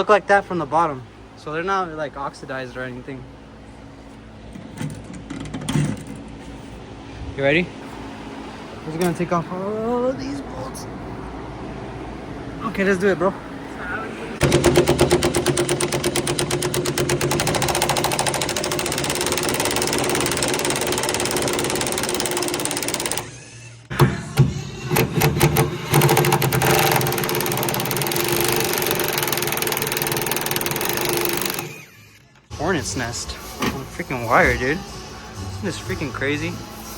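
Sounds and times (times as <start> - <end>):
impact wrench rattling: 14.4 - 23.4, 24.9 - 31.9.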